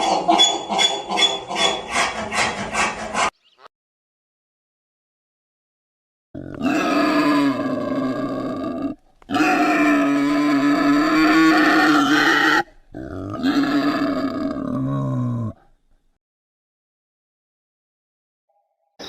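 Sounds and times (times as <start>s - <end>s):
animal crying: 6.4s - 15.6s.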